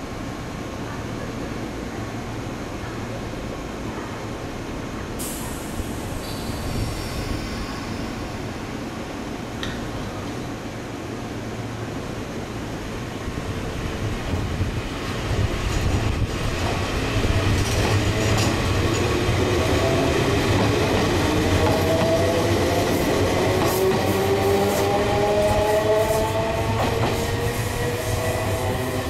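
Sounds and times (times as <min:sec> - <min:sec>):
rail-joint clicks: 0:17.5 - 0:19.2.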